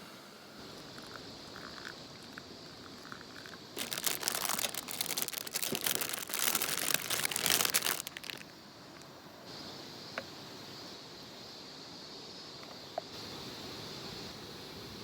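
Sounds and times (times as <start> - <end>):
crinkling and crumpling: 0.7 - 9.1.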